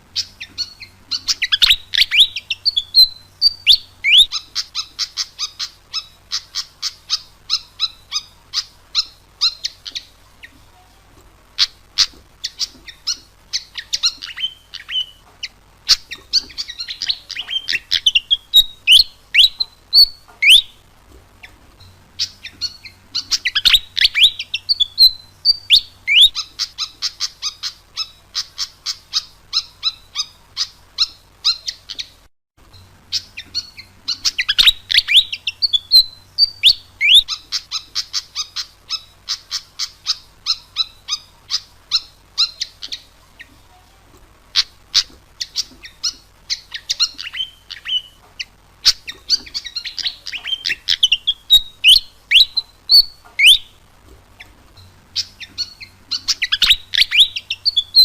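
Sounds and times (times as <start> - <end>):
squeaky whistled bird notes: 0.2 - 10.1, 11.6 - 20.8, 22.2 - 32.1, 48.8 - 53.8, 55.2 - 58.0
bird chirping rapidly: 0.2 - 10.6, 11.6 - 32.2, 33.1 - 43.5, 44.5 - 54.5, 55.1 - 58.0.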